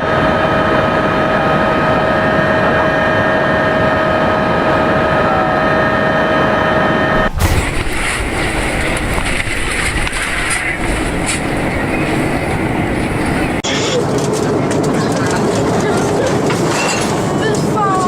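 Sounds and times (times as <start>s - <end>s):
jet engine running with high whine: 7.8s - 13.6s.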